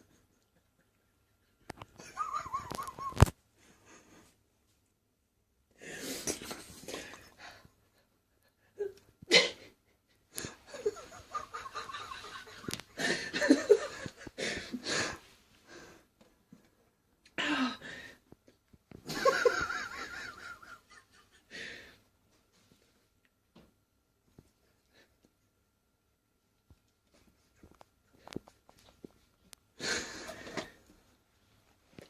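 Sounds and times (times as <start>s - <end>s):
person laughing under breath: 0.0s - 3.3s, 8.6s - 15.2s.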